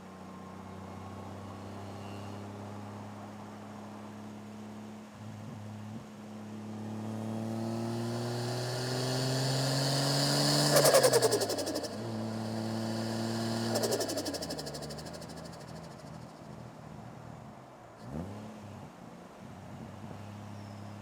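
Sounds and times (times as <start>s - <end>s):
car engine revving: 7.0s - 16.8s
turbo flutter: 7.6s - 16.8s.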